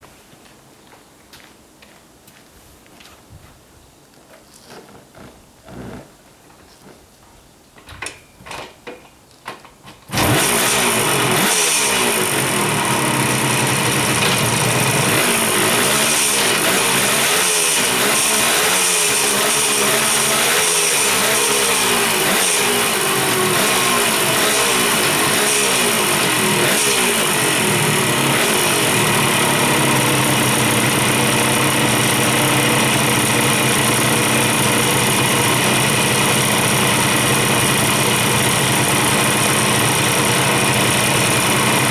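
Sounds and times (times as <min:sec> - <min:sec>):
two-stroke engine revving: 0:10.1 - 0:41.9.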